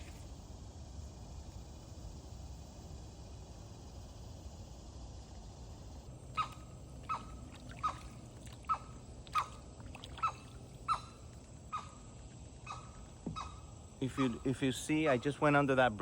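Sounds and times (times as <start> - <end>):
kayak paddle splashing water: 6.4 - 11.6.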